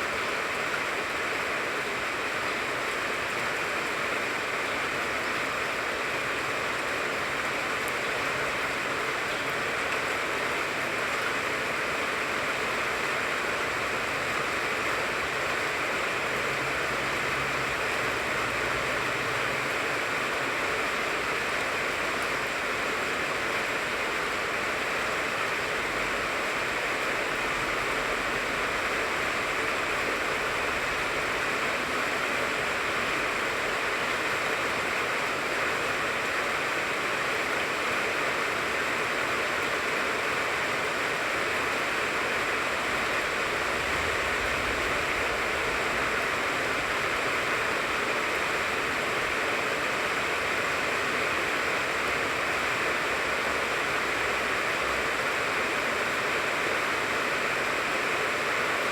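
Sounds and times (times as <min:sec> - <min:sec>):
steady rain on tree: 0:00.0 - 0:58.9.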